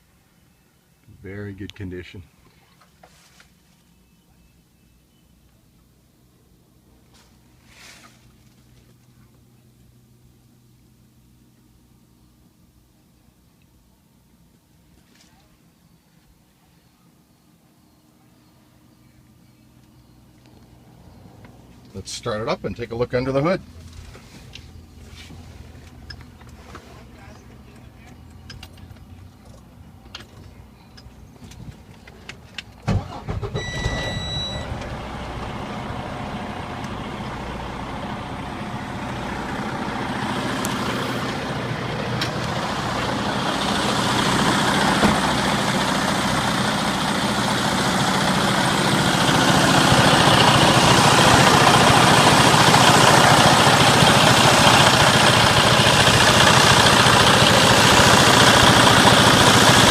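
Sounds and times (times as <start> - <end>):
diesel engine cranking and starting: 20.5 - 59.9
high-pitched beep: 33.6 - 34.7.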